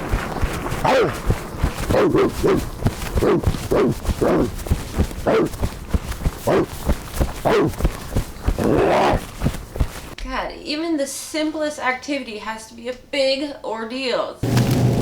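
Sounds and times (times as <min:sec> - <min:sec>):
soft low thumps: 0:00.0 - 0:10.3
person yelping like a dog: 0:00.8 - 0:01.2, 0:01.9 - 0:04.6, 0:05.2 - 0:05.6, 0:06.4 - 0:06.8, 0:07.4 - 0:07.8, 0:08.6 - 0:09.3.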